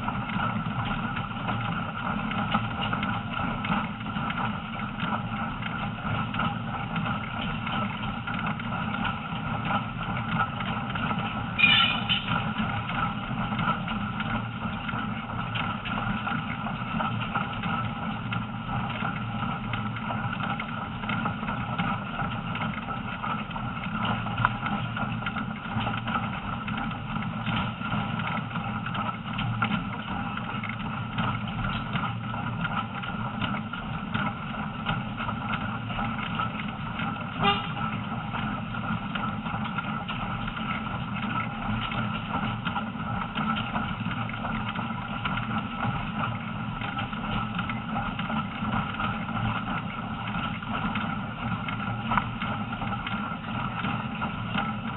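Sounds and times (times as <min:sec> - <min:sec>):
train wheels on rails: 0:11.2 - 0:12.9, 0:37.2 - 0:38.1.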